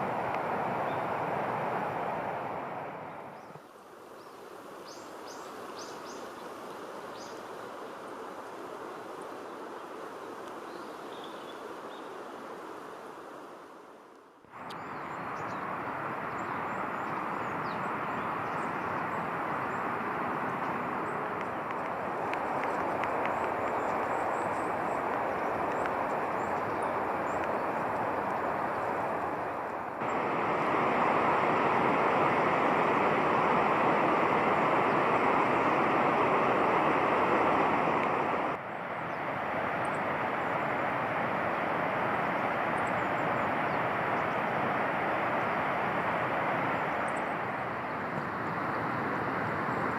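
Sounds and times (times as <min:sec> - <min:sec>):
steady rushing noise: 0:11.7 - 0:49.9.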